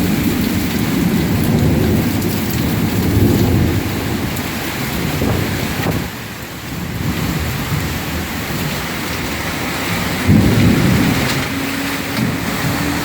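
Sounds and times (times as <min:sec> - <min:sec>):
heavy rain pouring: 0:00.0 - 0:13.0
thunder rumble: 0:00.0 - 0:13.0.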